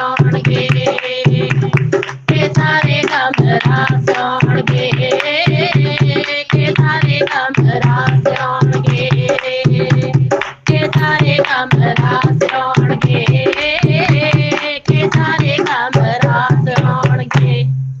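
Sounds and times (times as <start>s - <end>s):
steady drum beat: 0.0s - 17.6s
person singing: 0.0s - 17.7s.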